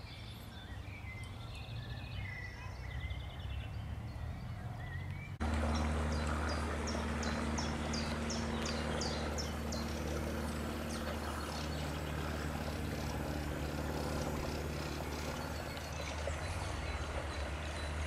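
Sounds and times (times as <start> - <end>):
songbird calling: 0.0 - 18.0
steady low hum: 5.4 - 18.0.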